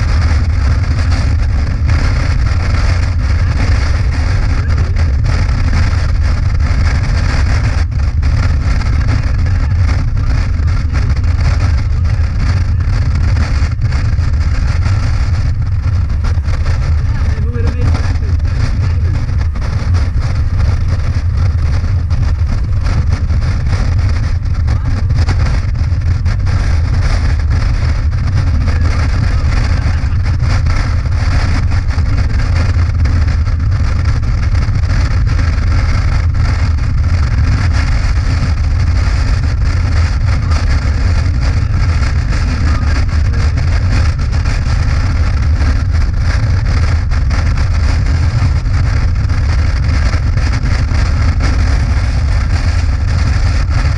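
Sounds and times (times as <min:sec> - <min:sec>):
motorcycle engine drone: 0:00.0 - 0:53.9
wind rushing over microphone: 0:00.0 - 0:53.9.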